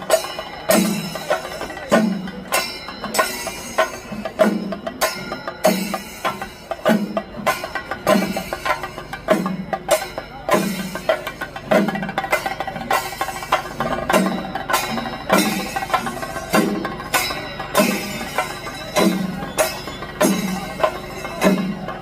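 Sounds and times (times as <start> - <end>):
drum strokes: 0.0 - 22.0.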